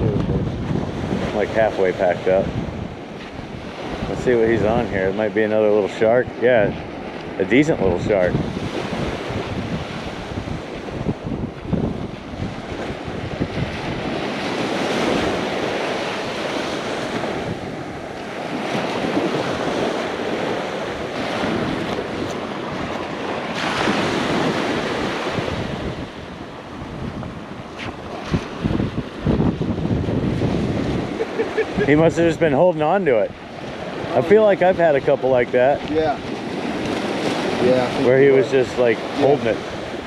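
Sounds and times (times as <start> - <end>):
ocean surf breaking: 0.0 - 40.0
wind buffeting microphone: 0.0 - 40.0.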